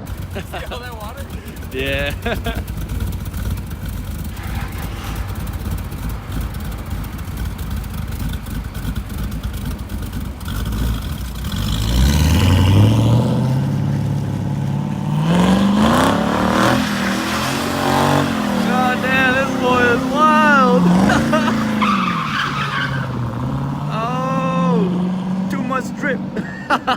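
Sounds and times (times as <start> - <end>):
car engine revving: 0.0 - 26.9.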